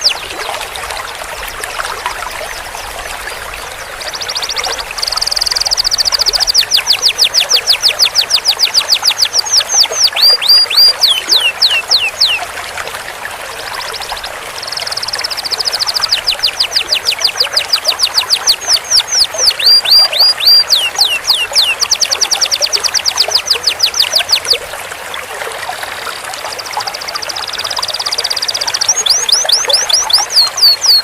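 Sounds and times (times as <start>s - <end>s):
canary singing: 4.2s - 12.5s, 14.6s - 24.6s, 27.4s - 31.0s.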